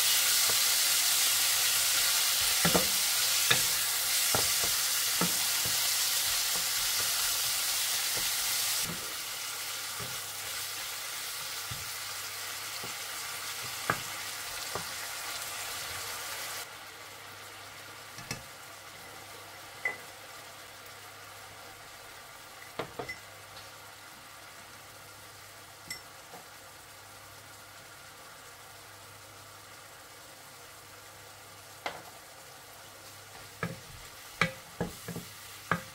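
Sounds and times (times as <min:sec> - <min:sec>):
chicken sizzling in a frying pan: 0:00.0 - 0:35.9
spatula knocking against pan: 0:33.6 - 0:33.8, 0:34.4 - 0:35.9.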